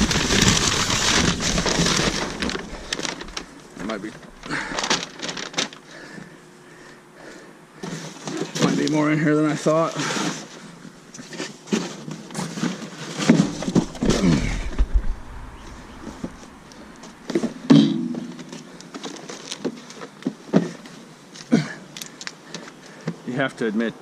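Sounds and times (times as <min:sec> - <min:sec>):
bags rustling: 0:00.0 - 0:23.0
objects knocking and clattering: 0:11.2 - 0:15.2
low rumble: 0:13.5 - 0:17.3.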